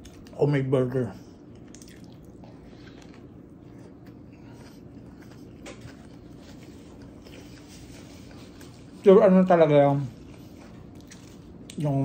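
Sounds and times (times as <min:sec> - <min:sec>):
chewing with mouth closed: 0:00.0 - 0:00.4, 0:01.3 - 0:09.0, 0:10.1 - 0:11.9
wet mouth clicks: 0:01.6 - 0:02.3.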